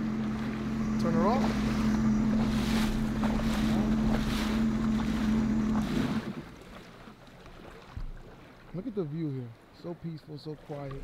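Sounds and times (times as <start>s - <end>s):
jet ski engine idling: 0.0s - 6.6s
faint wind: 0.0s - 11.0s
water lapping: 0.0s - 11.0s.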